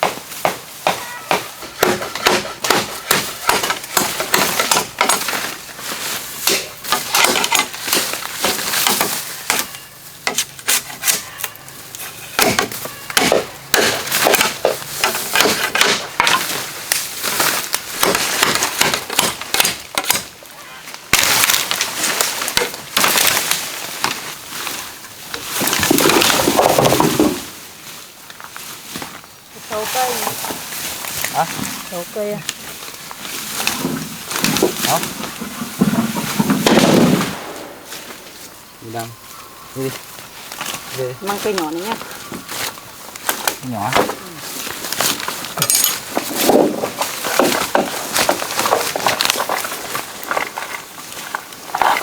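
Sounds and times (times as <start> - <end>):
bamboo being chopped with a blade: 0.0 - 11.5, 12.3 - 20.5, 21.1 - 24.4, 32.4 - 38.2, 40.5 - 52.0.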